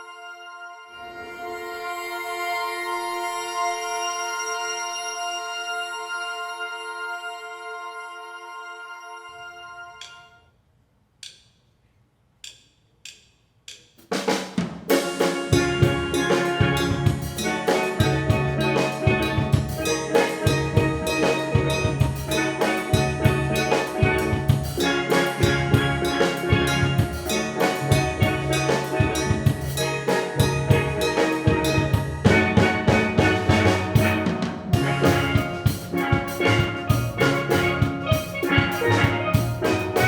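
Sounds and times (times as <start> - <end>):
drumstick count-in clicks: 11.2 - 11.7, 12.4 - 14.1
steel band playing: 14.2 - 40.0
bass drum beat: 14.6 - 40.0.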